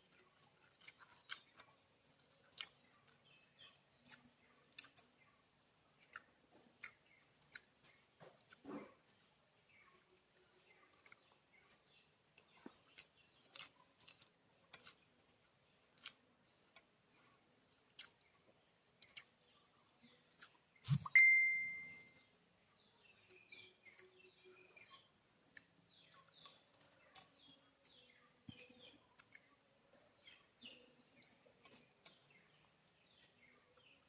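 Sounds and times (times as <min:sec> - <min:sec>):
birds chirping: 0:00.0 - 0:34.0
bright ringing ding: 0:21.1 - 0:22.1.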